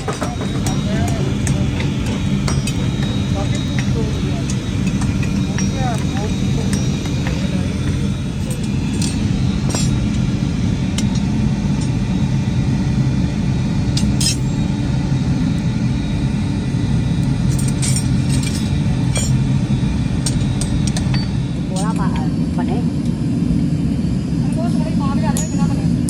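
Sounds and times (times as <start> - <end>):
machine rumbling: 0.0 - 25.4
light metallic clinks: 14.0 - 14.6, 25.3 - 25.9.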